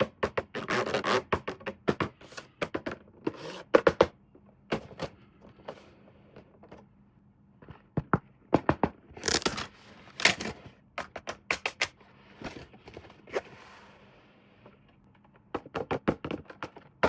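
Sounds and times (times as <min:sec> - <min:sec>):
packaging rustling: 0:09.2 - 0:10.6.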